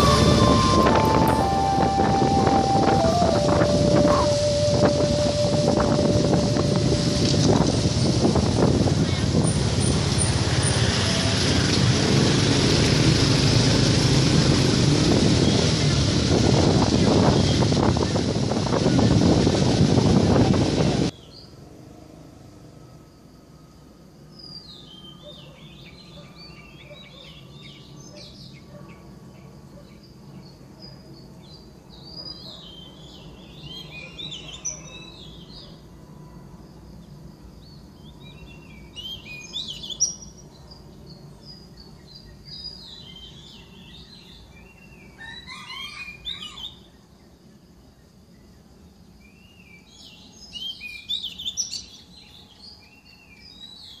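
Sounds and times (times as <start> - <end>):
songbird chirping: 0.0 - 7.8.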